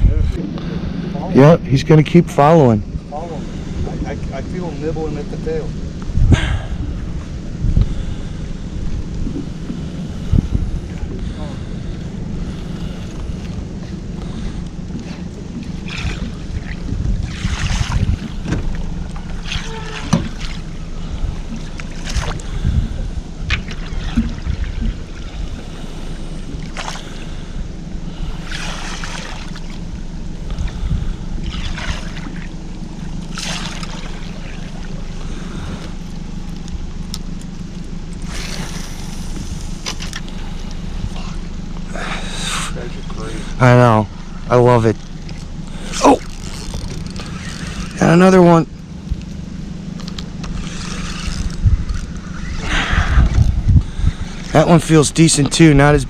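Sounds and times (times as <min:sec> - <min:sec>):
low motor hum: 0:00.0 - 0:56.0
wind: 0:00.0 - 0:56.0
hissing splashes: 0:28.2 - 0:29.9, 0:31.4 - 0:36.0, 0:38.2 - 0:39.8, 0:41.0 - 0:48.7, 0:50.4 - 0:55.9.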